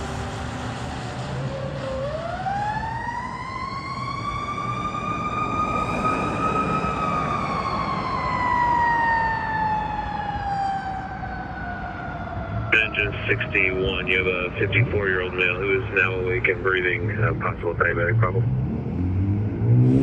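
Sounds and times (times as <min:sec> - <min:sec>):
fire engine siren wailing: 0:00.0 - 0:17.0
low rumble: 0:04.9 - 0:08.5.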